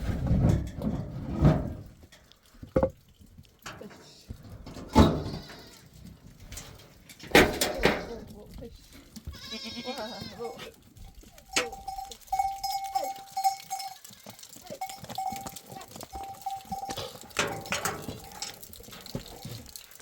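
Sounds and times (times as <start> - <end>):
livestock bleating: 4.8 - 6.0, 9.2 - 10.7, 11.5 - 17.0.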